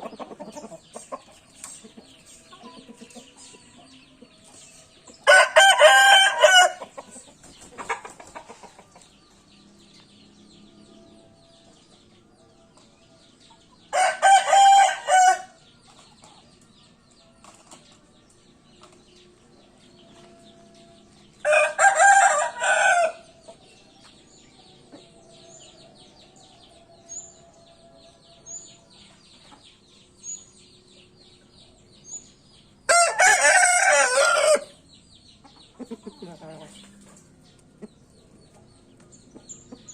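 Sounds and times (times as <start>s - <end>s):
rooster crowing: 5.2s - 6.8s, 13.9s - 15.6s, 21.4s - 23.2s, 32.9s - 34.7s.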